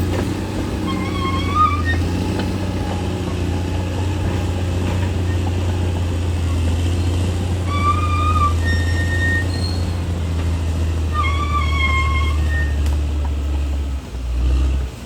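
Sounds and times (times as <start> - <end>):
bulldozer diesel engine running: 0.0 - 15.0
short high squeals: 0.7 - 2.3, 7.0 - 10.1, 10.8 - 12.9.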